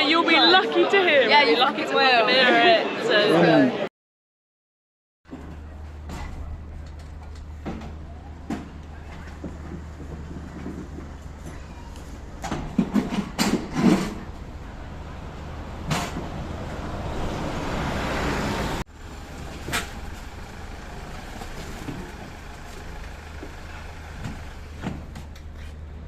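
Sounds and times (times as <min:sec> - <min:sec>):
lorry engine idling: 0:14.3 - 0:26.0.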